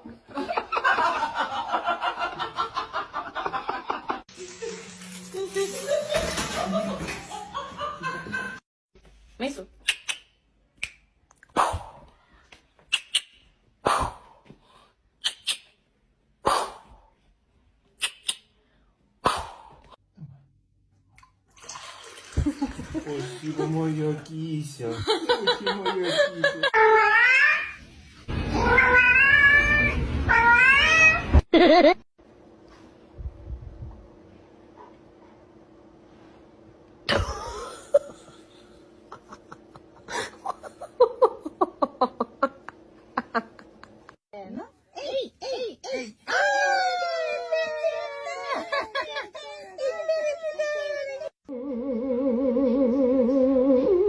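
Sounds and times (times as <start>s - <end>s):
person laughing: 37.1s - 44.2s, 45.2s - 51.3s.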